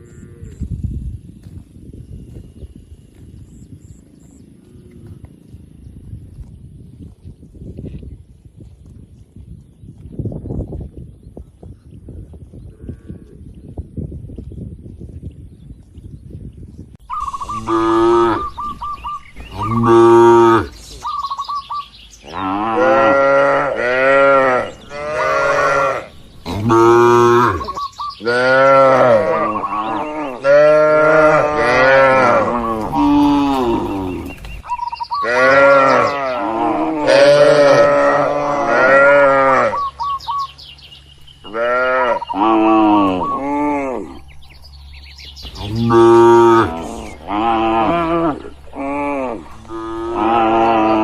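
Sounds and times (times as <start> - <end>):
cattle mooing: 17.3 - 18.8, 19.5 - 20.8, 22.2 - 34.3, 35.2 - 39.9, 41.4 - 44.3, 45.5 - 51.0.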